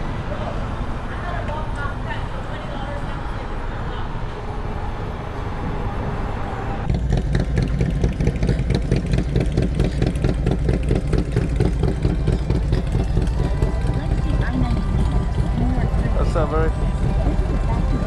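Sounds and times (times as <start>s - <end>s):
motorcycle engine idling: 6.9s - 18.0s.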